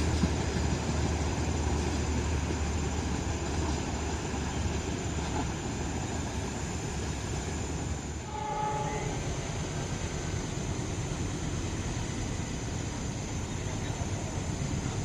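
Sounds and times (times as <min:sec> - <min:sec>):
diesel train rumbling: 0:00.0 - 0:15.0
train horn: 0:08.2 - 0:09.6.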